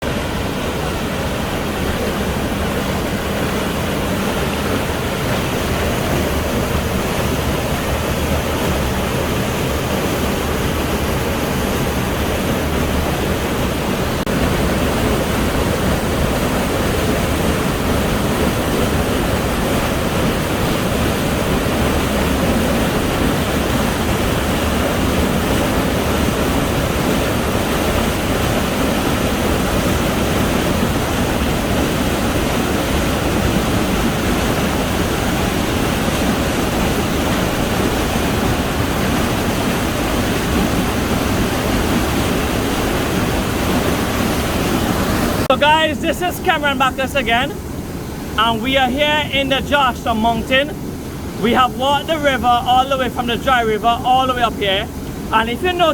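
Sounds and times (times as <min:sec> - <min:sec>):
waterfall rushing into pool: 0:00.0 - 0:55.9.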